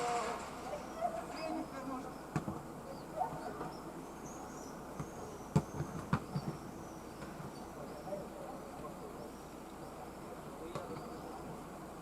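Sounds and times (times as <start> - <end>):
low city background: 0.0 - 12.0.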